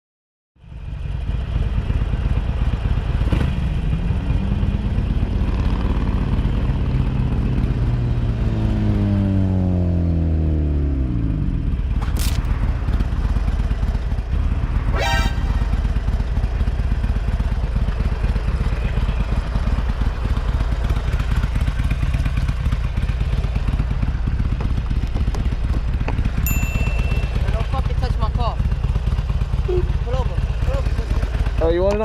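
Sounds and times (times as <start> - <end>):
motorcycle engine rumbling: 11.5 - 32.0
vehicle horn beep: 14.9 - 16.2.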